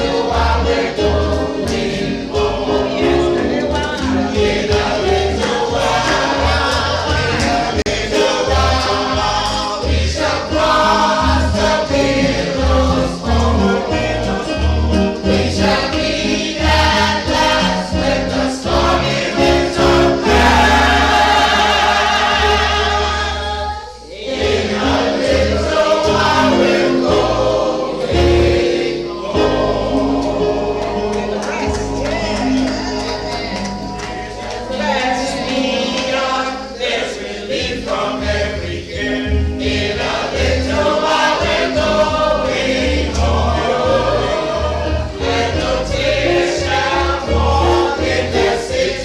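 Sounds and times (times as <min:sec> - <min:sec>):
choir singing a hymn: 0:00.0 - 0:49.0
instrumental accompaniment with bass: 0:00.0 - 0:49.0.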